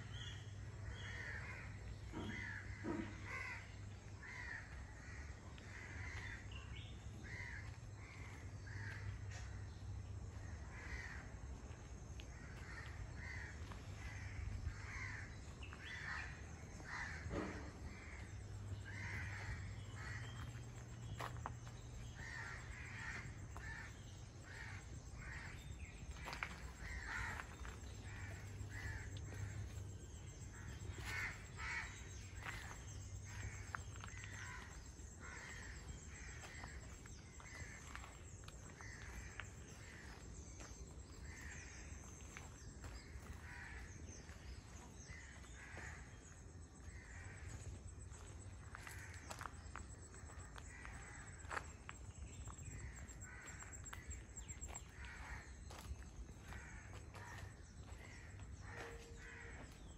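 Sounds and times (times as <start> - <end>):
steady low hum: 0.0 - 59.9
birds calling: 12.4 - 59.9.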